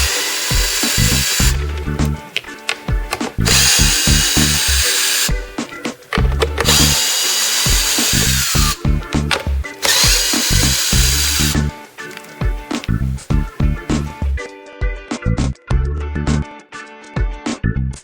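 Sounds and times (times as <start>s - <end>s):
power tool whirring bursts: 0.0s - 1.6s, 3.4s - 5.4s, 6.6s - 8.8s, 9.8s - 11.7s
background music with low beat: 0.0s - 18.0s.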